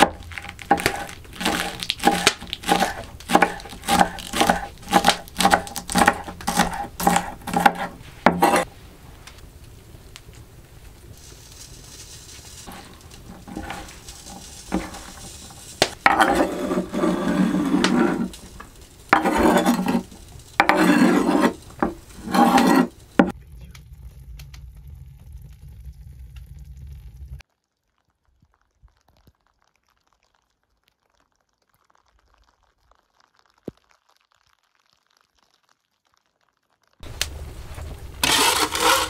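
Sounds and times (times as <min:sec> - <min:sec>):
utensils scraping on a board: 0:00.0 - 0:08.7, 0:12.4 - 0:23.3, 0:38.2 - 0:39.0.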